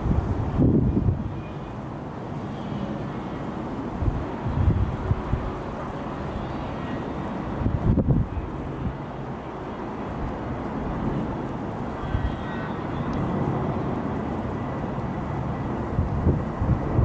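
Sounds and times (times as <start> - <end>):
faint high whine: 0.0 - 17.0
jet engine rumble: 0.0 - 17.0.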